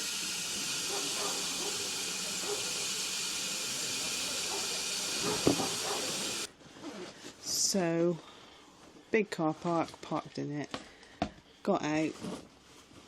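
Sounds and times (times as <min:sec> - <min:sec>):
steam locomotive hissing: 0:00.0 - 0:06.5.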